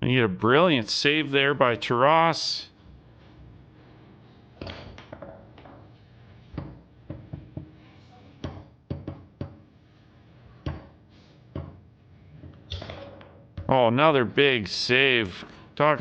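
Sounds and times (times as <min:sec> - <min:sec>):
foosball ball and rods clacking: 0:04.6 - 0:07.8, 0:08.4 - 0:09.7, 0:10.6 - 0:11.8, 0:12.4 - 0:13.7.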